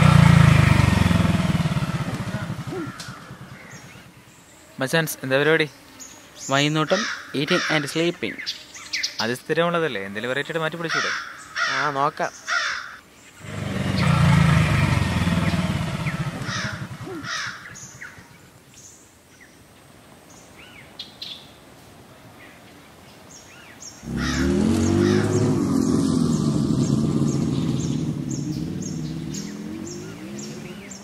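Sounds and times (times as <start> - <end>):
motorcycle engine running: 0.0 - 4.1, 13.4 - 18.1, 24.0 - 31.0
small birds chirping: 0.0 - 19.6, 22.4 - 31.0
crows cawing: 1.6 - 4.0, 6.8 - 8.2, 10.8 - 14.6, 15.8 - 18.2, 24.0 - 25.5.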